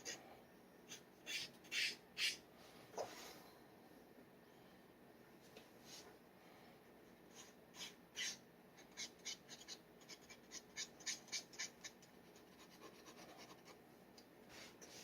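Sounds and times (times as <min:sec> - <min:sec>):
dip pen scratching paper: 0:07.4 - 0:13.8.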